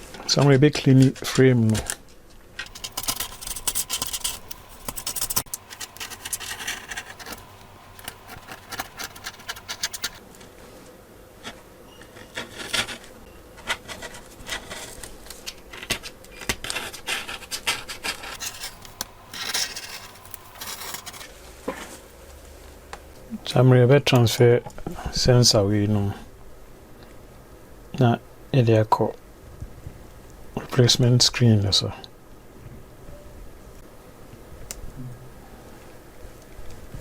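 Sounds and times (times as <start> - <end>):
scraping and rubbing on tablet frame: 2.6 - 10.2, 11.4 - 15.1, 16.6 - 22.0.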